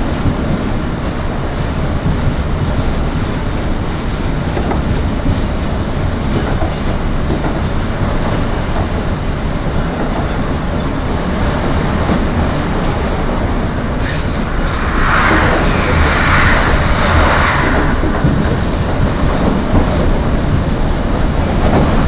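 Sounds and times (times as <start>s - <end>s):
wheels rumbling on rails: 0.0s - 22.0s.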